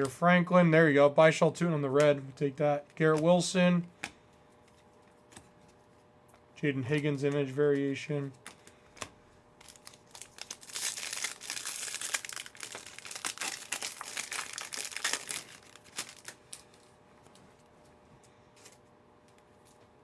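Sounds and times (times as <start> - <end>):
plastic wrapper tearing and crinkling: 9.6 - 16.8.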